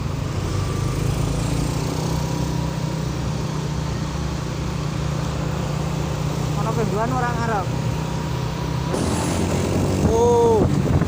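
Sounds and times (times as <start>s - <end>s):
road noise: 0.0s - 11.0s
truck engine humming: 3.4s - 11.0s.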